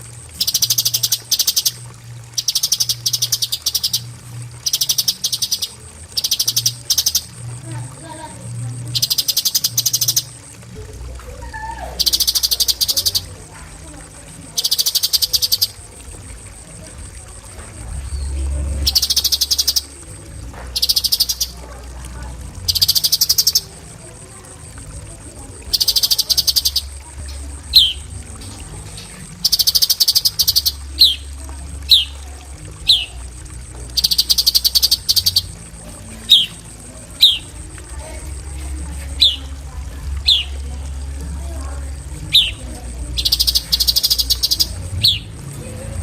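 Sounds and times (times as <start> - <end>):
bird rapid harsh trills: 0.4 - 1.8, 2.4 - 7.4, 8.9 - 10.4, 11.4 - 13.3, 14.6 - 15.9, 18.1 - 20.0, 20.8 - 21.6, 22.7 - 23.7, 25.7 - 28.1, 28.8 - 31.3, 31.9 - 32.1, 32.8 - 33.2, 34.0 - 35.6, 36.2 - 37.6, 39.1 - 39.5, 40.2 - 40.6, 42.3 - 45.3.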